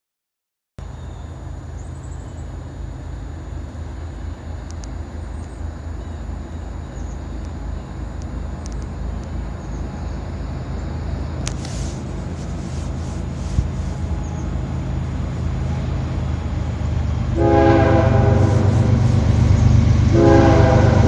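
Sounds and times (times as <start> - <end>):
distant freight train rumble: 0.8 - 21.0
faint sharp clicks: 4.6 - 5.6, 8.2 - 9.4.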